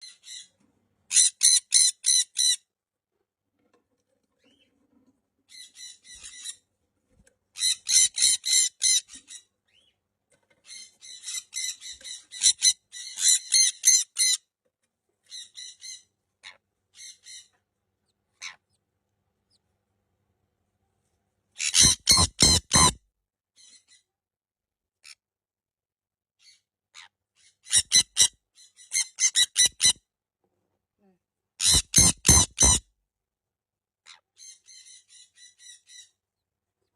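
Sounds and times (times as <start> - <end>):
parrot screeching: 1.1 - 2.6, 21.6 - 23.0, 28.9 - 30.0, 31.6 - 32.8.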